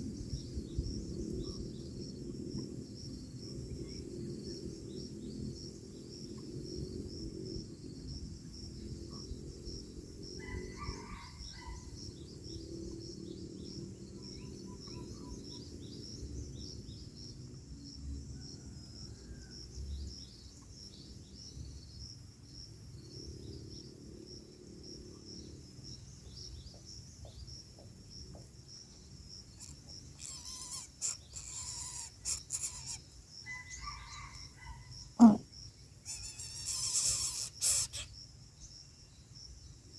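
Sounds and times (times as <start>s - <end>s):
insects trilling: 0.0s - 39.9s
bird chirps: 29.6s - 34.3s, 36.1s - 38.2s.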